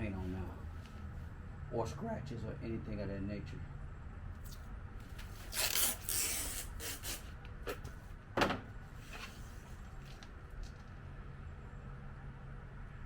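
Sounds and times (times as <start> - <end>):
steady low hum: 0.0 - 13.0
masking tape ripping off roll: 5.2 - 7.4.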